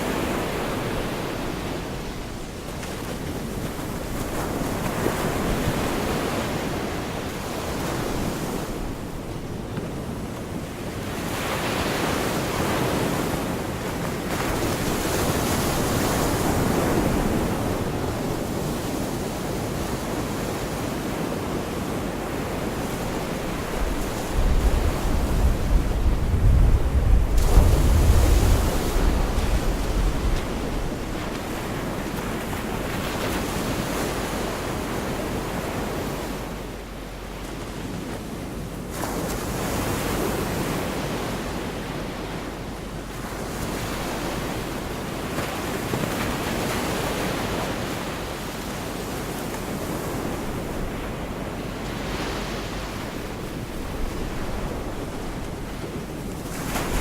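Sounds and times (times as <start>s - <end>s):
wind rumble on microphone: 0.0s - 57.0s
surf breaking on beach: 11.0s - 38.3s, 38.9s - 57.0s.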